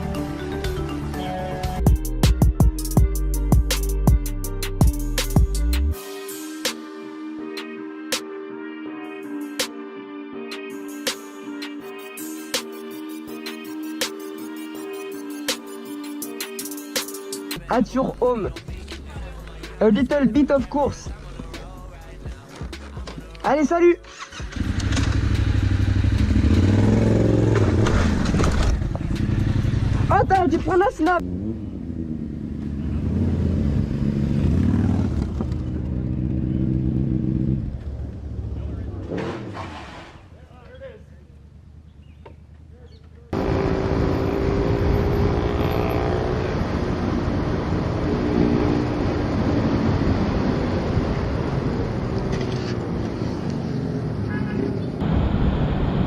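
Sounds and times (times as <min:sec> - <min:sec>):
motorcycle engine: 0:24.1 - 0:30.2, 0:31.2 - 0:40.3, 0:41.0 - 0:55.4
motorcycle engine running: 0:24.4 - 0:30.5, 0:41.1 - 0:46.4.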